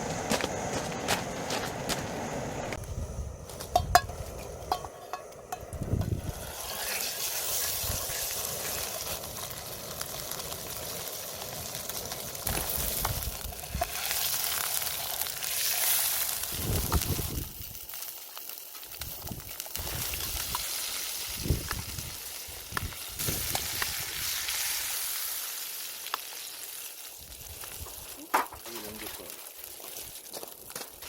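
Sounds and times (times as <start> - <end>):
food sizzling in hot fat: 3.5 - 31.0.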